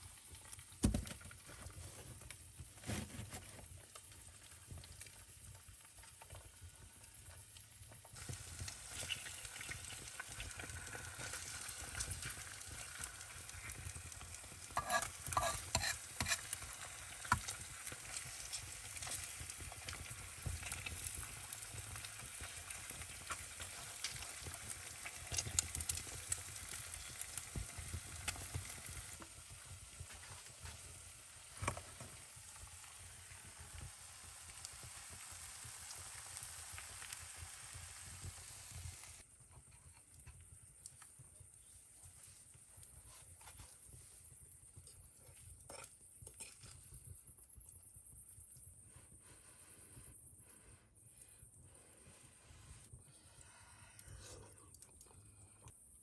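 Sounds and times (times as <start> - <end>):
food sizzling in a pan: 4.0 - 39.2.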